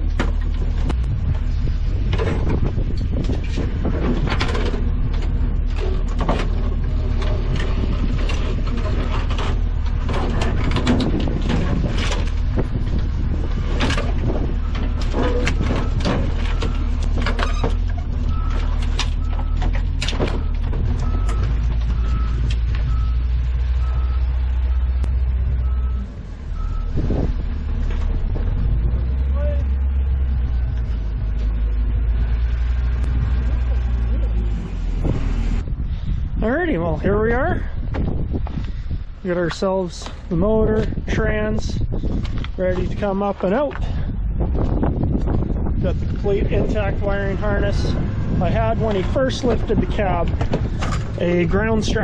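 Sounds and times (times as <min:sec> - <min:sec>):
wind buffeting microphone: 0:00.0 - 0:52.0
knocks and clicks: 0:02.1 - 0:23.2
vehicle reversing alarm beeping: 0:14.4 - 0:17.1, 0:18.2 - 0:25.0, 0:25.6 - 0:27.0.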